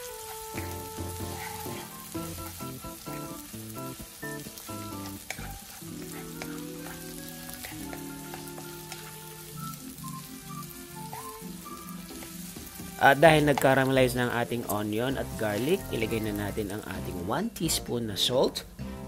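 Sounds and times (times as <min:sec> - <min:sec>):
wooden spatula stirring: 0:00.0 - 0:03.4, 0:04.8 - 0:09.5
onion sizzling in hot oil: 0:00.0 - 0:17.8
background music with held notes: 0:00.0 - 0:19.0.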